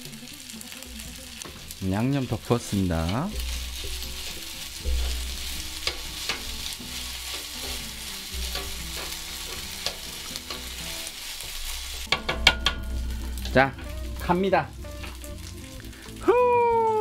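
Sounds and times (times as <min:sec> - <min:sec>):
food sizzling on a griddle: 0:00.0 - 0:17.0
utensils scraping a griddle: 0:03.0 - 0:12.3.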